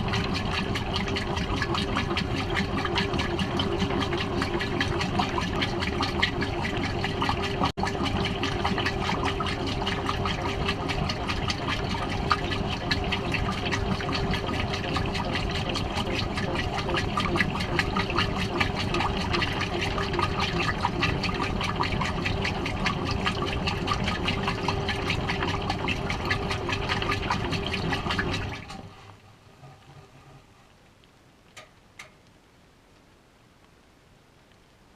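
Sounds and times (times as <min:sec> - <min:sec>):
water rushing and splashing: 0:00.0 - 0:31.0
washing machine hum: 0:00.0 - 0:32.2
faint ticks: 0:30.7 - 0:34.8.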